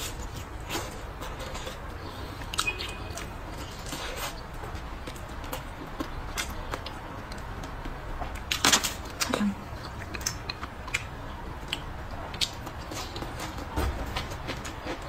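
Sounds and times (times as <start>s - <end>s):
chewing with wet mouth clicks: 2.4s - 13.6s.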